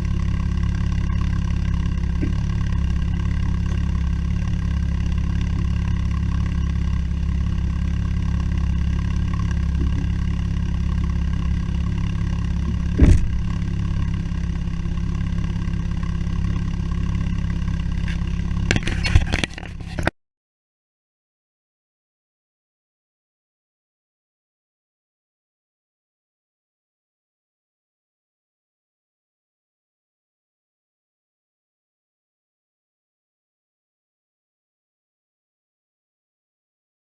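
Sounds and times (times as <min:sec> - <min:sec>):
car engine idling: 0:00.0 - 0:20.1
thump: 0:12.7 - 0:13.5
clicks and clatter: 0:18.0 - 0:20.1.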